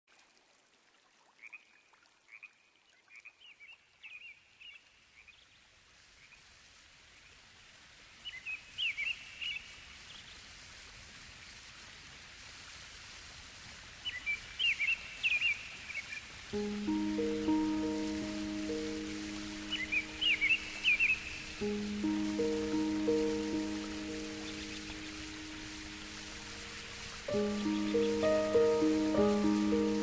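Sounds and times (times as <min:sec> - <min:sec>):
steady hiss: 0:09.8 - 0:30.0
small birds chirping: 0:14.1 - 0:30.0.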